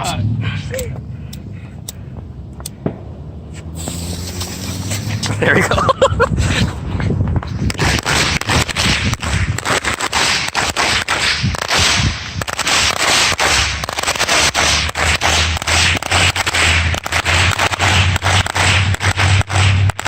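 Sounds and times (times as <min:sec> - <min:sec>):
fireworks crackling: 0:02.7 - 0:20.0.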